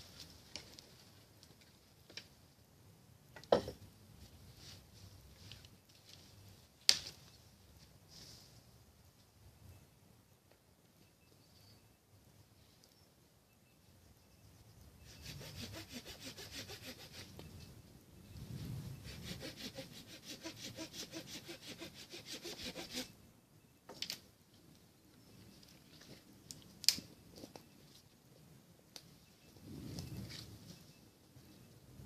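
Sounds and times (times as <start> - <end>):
hand saw cutting wood: 15.1 - 17.3, 19.0 - 23.1.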